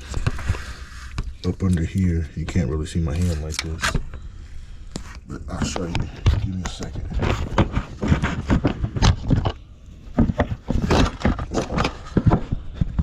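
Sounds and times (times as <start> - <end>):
knocks scrapes and rustles: 0.0 - 4.2, 4.9 - 13.0.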